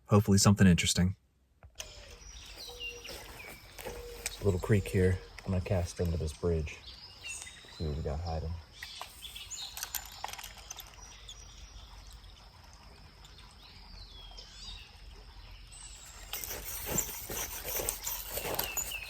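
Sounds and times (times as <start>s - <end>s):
bird call: 1.9s - 5.5s
creek ambience: 2.0s - 19.0s.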